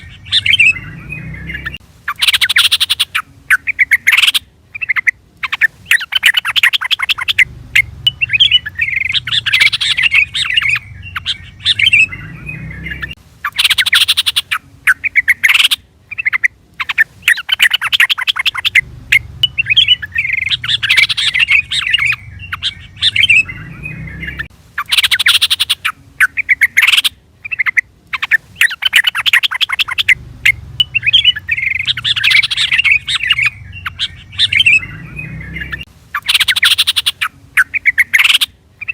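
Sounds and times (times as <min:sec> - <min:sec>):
bird chattering calls: 0:00.0 - 0:38.9.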